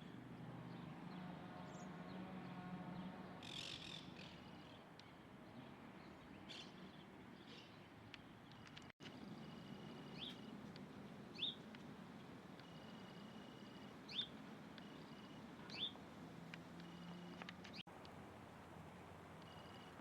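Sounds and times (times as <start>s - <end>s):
faint background noise: 0.0s - 20.0s
bird chirping: 3.4s - 10.5s, 11.3s - 11.6s, 12.6s - 16.0s.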